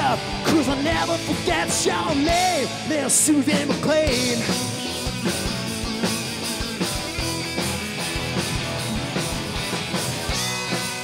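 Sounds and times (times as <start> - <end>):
guitar chords: 0.0 - 11.0
rock band playing: 0.0 - 11.0
steady drum beat: 0.0 - 11.0.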